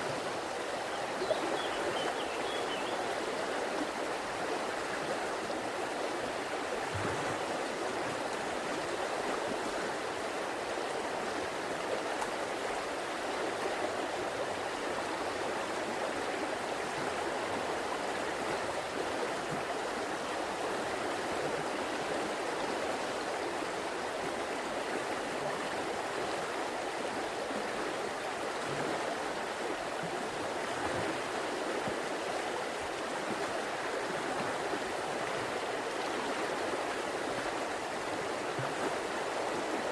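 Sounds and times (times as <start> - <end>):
water rushing over rocks: 6.2 - 10.3.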